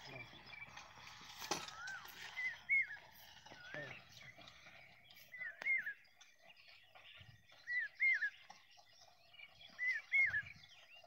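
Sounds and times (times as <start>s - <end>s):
faint rural background noise: 0.0s - 11.0s
bird whistled call: 1.6s - 4.4s, 5.2s - 6.1s, 7.5s - 8.5s, 9.4s - 11.0s.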